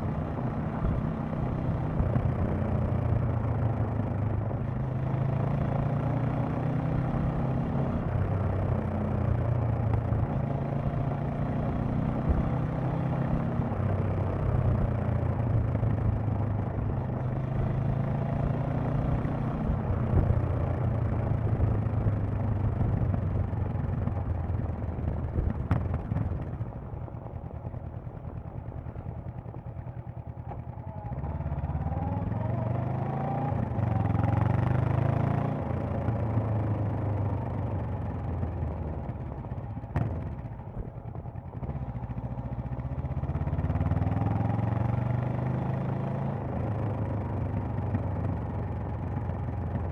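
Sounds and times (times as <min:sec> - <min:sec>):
motorcycle engine revving: 0:28.8 - 0:49.9.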